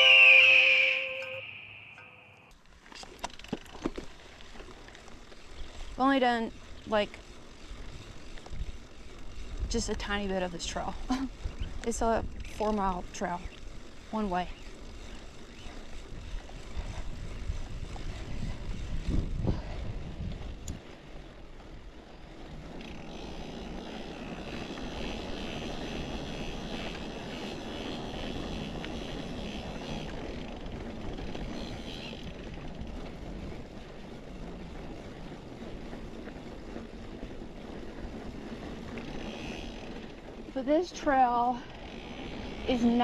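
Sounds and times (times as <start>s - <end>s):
high buzz: 0.0s - 2.5s
bike tyre and wind noise: 1.4s - 43.0s.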